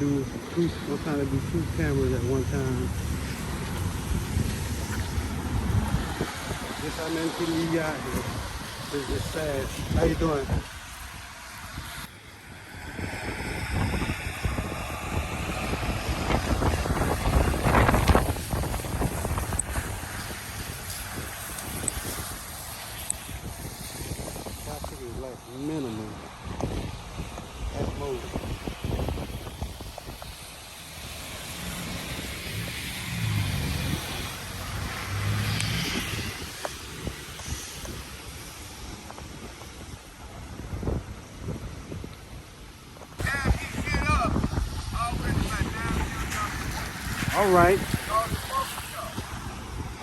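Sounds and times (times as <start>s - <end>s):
vehicle engine hum: 0.0s - 24.6s
wind buffeting microphone: 0.0s - 50.0s.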